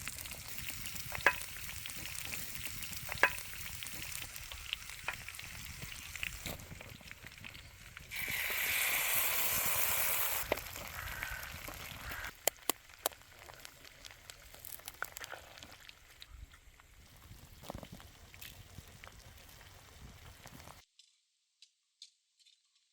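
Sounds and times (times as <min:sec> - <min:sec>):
food sizzling in a frying pan: 0:00.0 - 0:15.7
utensils clicking on pan: 0:00.5 - 0:05.8.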